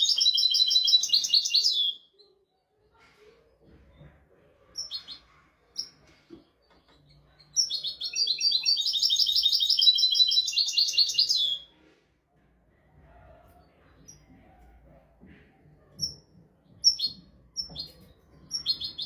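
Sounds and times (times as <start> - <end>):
goldfinch twittering song: 7.7 - 11.6.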